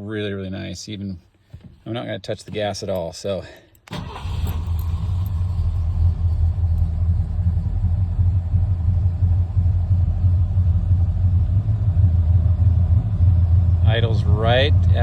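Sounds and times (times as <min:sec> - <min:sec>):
truck engine idling: 0:04.0 - 0:15.0.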